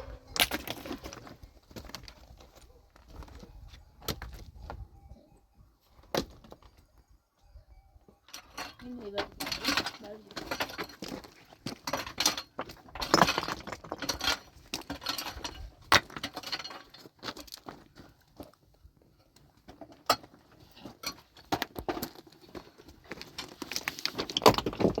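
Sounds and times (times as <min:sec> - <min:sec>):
hard objects knocking and clinking: 0:08.4 - 0:17.6.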